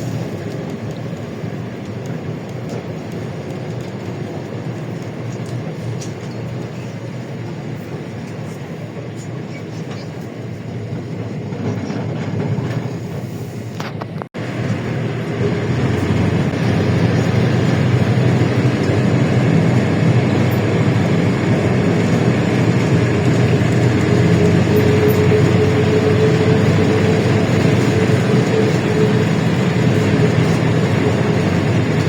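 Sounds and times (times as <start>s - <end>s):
bus engine and road noise: 0.0s - 32.0s
steady whine: 10.3s - 32.0s.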